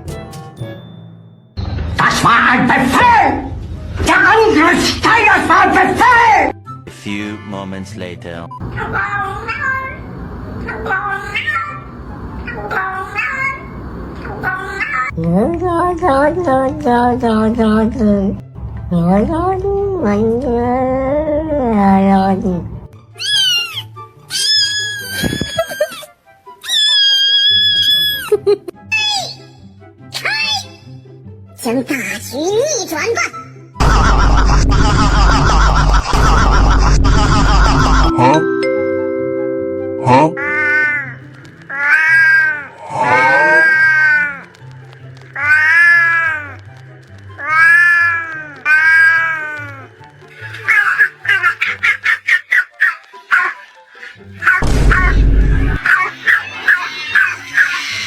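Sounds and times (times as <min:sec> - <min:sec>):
background music: 0:00.0 - 0:13.3, 0:15.1 - 0:58.0
cat meowing: 0:08.6 - 0:11.8, 0:40.4 - 0:44.7, 0:45.4 - 0:46.6, 0:47.4 - 0:49.9, 0:52.6 - 0:58.0.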